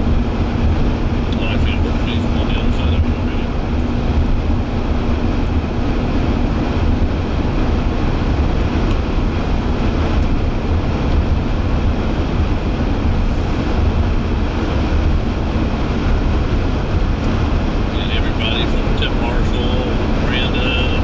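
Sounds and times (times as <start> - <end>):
vehicle road and wind noise: 0.0 - 21.0.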